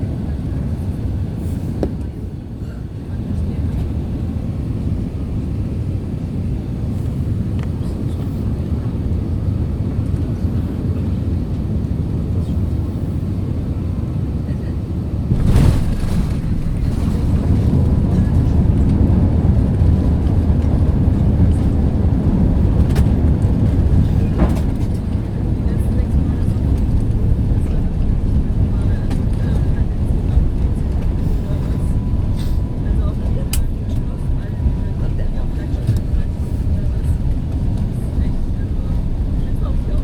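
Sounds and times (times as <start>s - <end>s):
airplane cabin low rumble: 0.0s - 40.0s
landing gear touchdown jolt: 15.3s - 18.1s.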